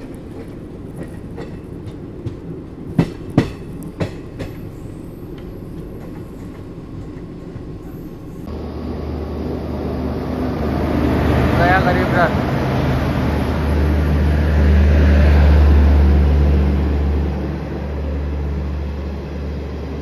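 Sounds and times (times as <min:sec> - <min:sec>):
wheels clacking over rail joints: 0:00.0 - 0:08.5
train rumbling on track: 0:00.0 - 0:20.0.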